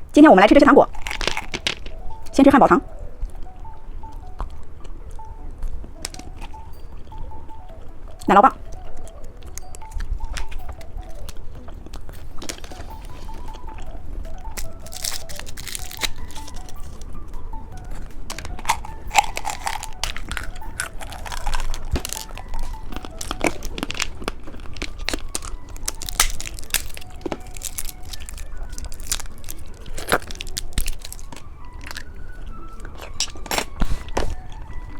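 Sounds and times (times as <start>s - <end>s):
plastic packaging crinkling: 0.9s - 2.2s, 12.0s - 17.0s, 17.7s - 34.4s.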